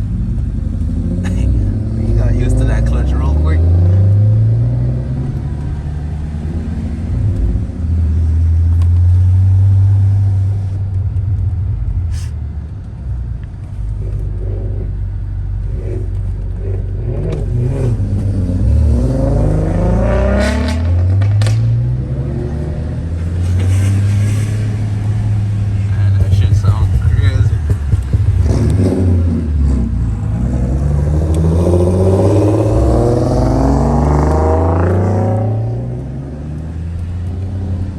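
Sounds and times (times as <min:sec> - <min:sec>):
car engine revving: 0:00.0 - 0:37.9
sharp clicks: 0:26.2 - 0:29.0.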